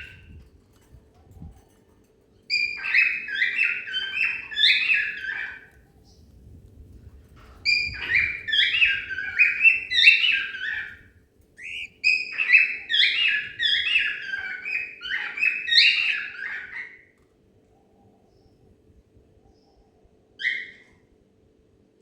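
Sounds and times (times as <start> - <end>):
cockatiel whistling: 11.6 - 14.2.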